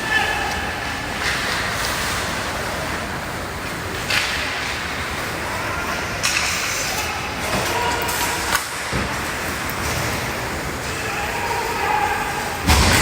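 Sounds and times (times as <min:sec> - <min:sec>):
hockey sticks and skates scraping: 0:00.0 - 0:13.0
ice rink din: 0:03.9 - 0:13.0.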